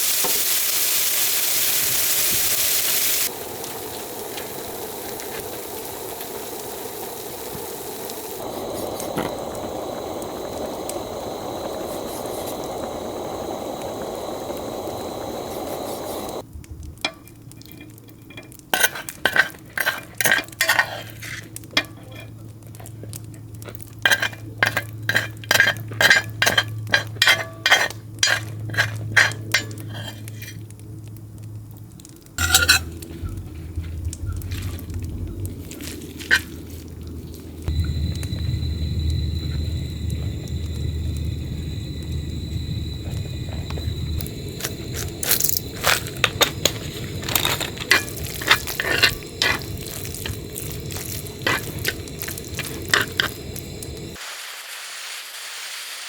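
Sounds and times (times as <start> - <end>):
food sizzling: 0.0 - 56.0
metal utensils clinking on dishes: 17.0 - 22.9, 24.0 - 30.6, 32.4 - 33.4, 44.6 - 53.7.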